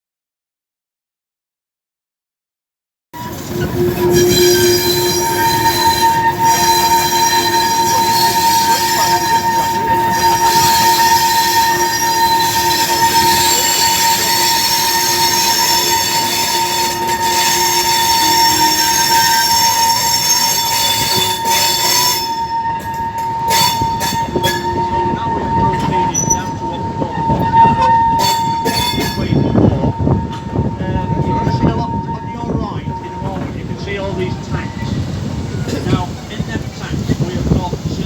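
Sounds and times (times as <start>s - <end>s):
train rumble: 3.2s - 38.0s
train wheels squealing on rails: 3.2s - 38.0s.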